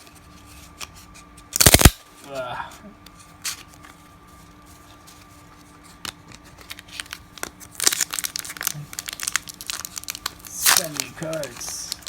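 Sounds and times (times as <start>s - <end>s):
wrapper tearing and crinkling: 1.6s - 2.0s, 6.3s - 12.0s.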